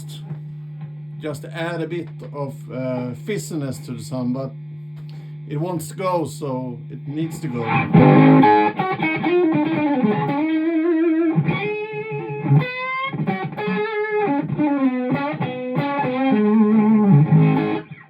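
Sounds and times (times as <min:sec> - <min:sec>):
fuzz electric guitar lead line: 0:07.1 - 0:18.0.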